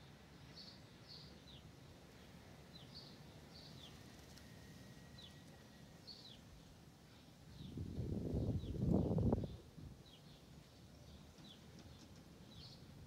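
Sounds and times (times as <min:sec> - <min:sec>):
low wind rumble: 0:07.5 - 0:10.1.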